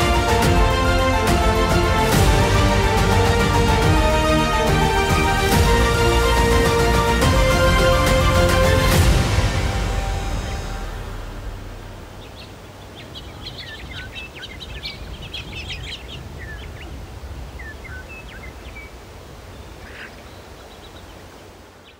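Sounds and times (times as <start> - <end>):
low rumble: 0.0 - 12.4
background music: 0.0 - 12.5
small birds chirping: 12.1 - 21.9.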